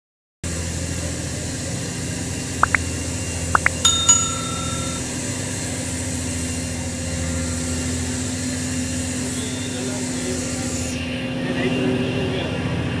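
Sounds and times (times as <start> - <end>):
short rising chirps: 2.6 - 2.8
bell-like ring: 3.6 - 5.2.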